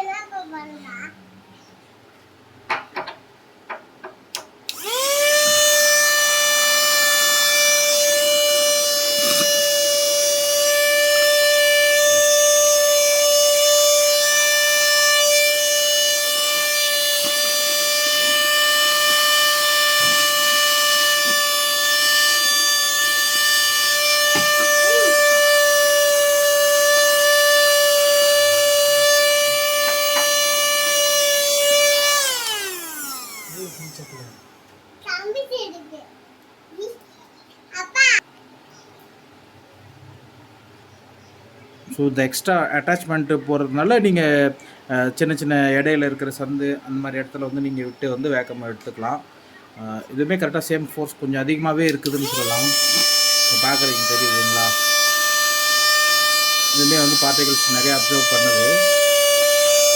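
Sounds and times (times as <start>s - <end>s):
handheld vacuum whining: 4.7s - 34.4s, 51.9s - 59.9s.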